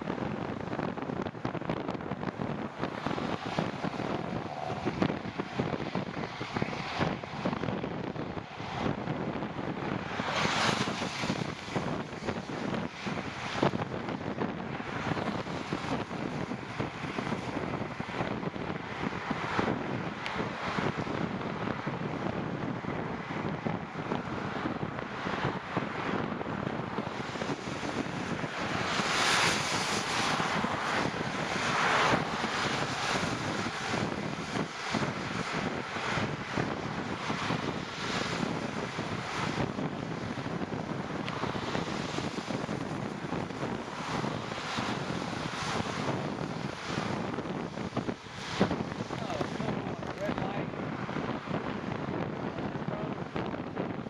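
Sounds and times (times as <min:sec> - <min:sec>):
wind rushing over microphone: 0:00.0 - 0:54.0
hiss of wet road noise: 0:02.4 - 0:18.4, 0:26.9 - 0:50.4.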